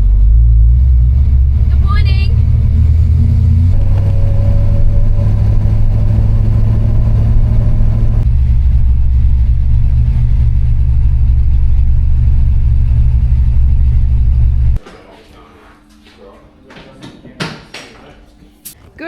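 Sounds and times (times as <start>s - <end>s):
motor vehicle low rumble: 0.0s - 14.8s.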